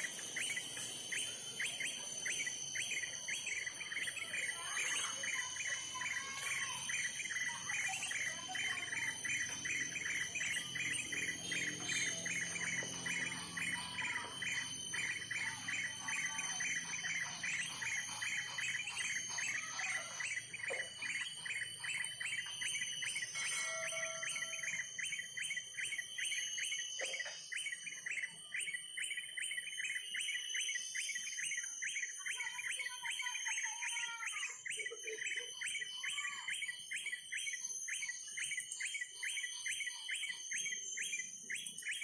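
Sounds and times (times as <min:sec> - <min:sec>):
steady high-pitched whine: 0:00.0 - 0:28.8
bird whistled phrases: 0:00.0 - 0:42.0
birds chirping: 0:00.0 - 0:42.0.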